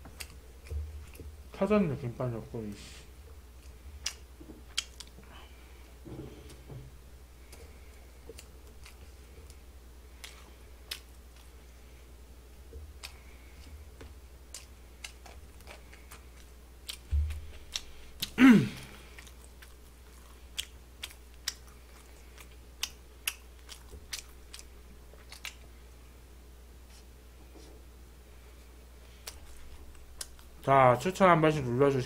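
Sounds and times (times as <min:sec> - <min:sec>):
chewing fried chicken: 0:00.0 - 0:01.4, 0:03.5 - 0:06.6, 0:07.4 - 0:26.1, 0:28.5 - 0:30.7.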